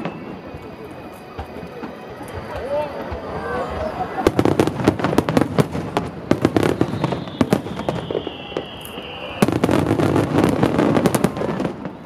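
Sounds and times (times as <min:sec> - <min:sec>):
firework whistle falling in pitch: 0:00.0 - 0:03.4, 0:06.3 - 0:12.0
fireworks bursting with bangs: 0:00.0 - 0:12.0.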